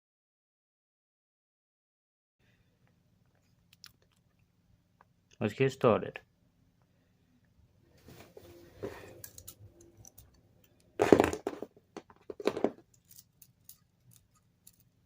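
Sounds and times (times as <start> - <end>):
small plastic pieces clicking: 9.2 - 15.0
plastic clatters: 11.0 - 14.9.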